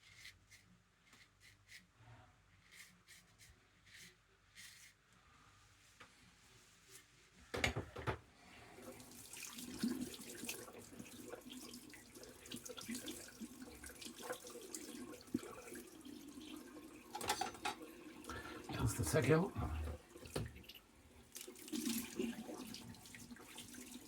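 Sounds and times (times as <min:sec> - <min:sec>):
tap water running into sink: 0:08.8 - 0:24.0.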